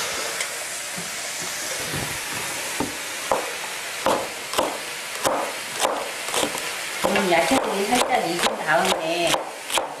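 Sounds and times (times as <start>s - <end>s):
vegetables sizzling in a wok: 0.0s - 10.0s
knife chopping on wooden board: 3.3s - 10.0s.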